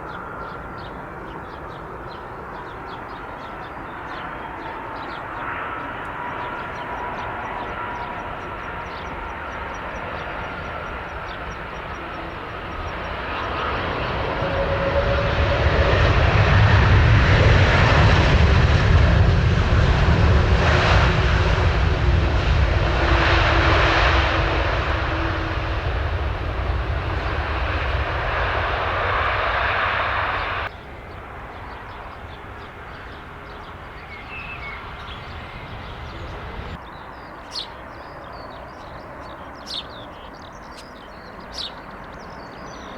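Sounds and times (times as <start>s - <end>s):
jet engines roaring: 0.0s - 42.9s
outdoor background: 0.0s - 42.9s.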